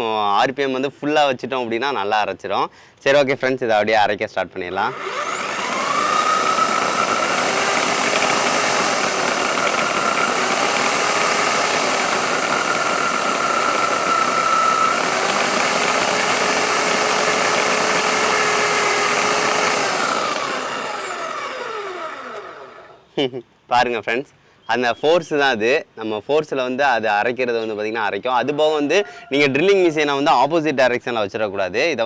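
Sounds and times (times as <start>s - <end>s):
electric drill motor whine: 4.8s - 23.0s
blade churning coconut: 4.9s - 22.9s.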